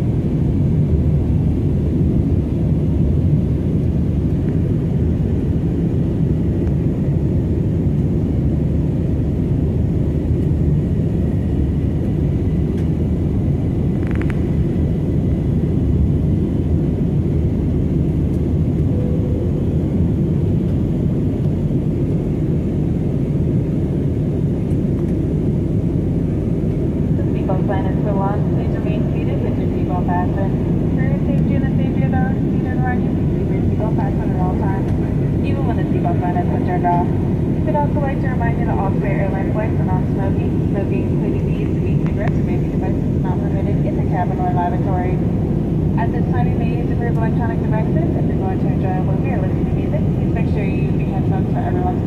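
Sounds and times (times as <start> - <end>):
jet engine cabin rumble: 0.0 - 52.0.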